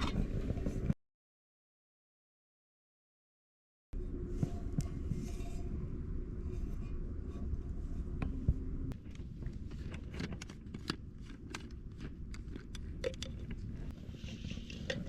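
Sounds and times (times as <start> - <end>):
steady low rumble: 4.0 - 15.0.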